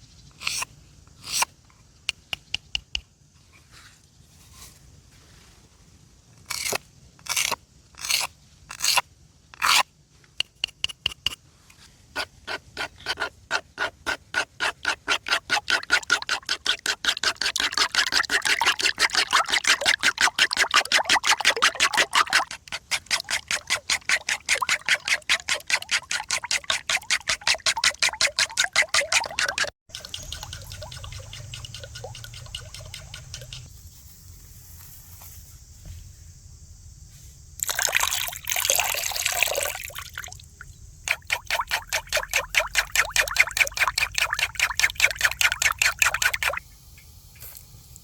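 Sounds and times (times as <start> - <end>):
eggs beaten in a bowl: 14.8 - 33.7, 41.1 - 46.6.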